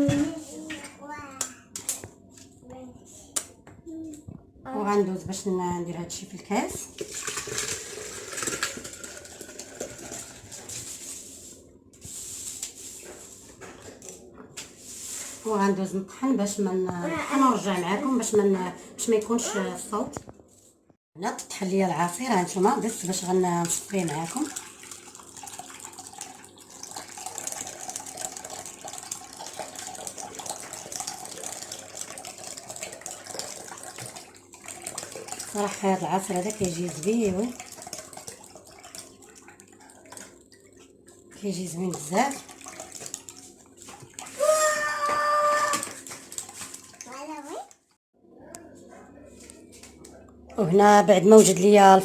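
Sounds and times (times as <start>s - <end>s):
juice pouring and splashing: 6.8s - 15.5s, 22.2s - 47.8s.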